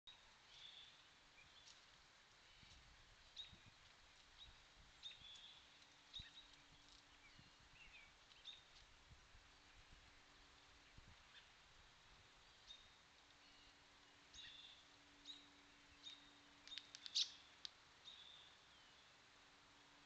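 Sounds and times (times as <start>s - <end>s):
small songbirds chirping: 0.1s - 20.0s.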